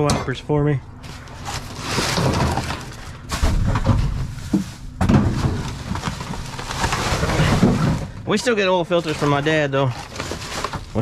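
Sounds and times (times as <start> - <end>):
rustling and clattering of trash: 1.0 - 11.0.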